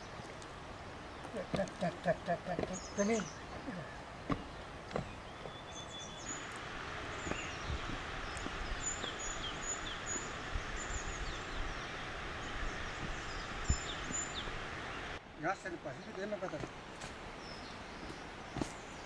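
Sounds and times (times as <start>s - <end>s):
steady hiss: 5.7s - 19.0s.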